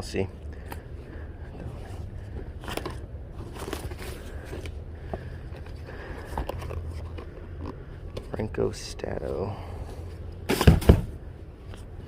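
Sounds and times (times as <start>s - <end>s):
low steady hum: 0.0s - 12.0s
hands rummaging through items: 0.6s - 8.7s.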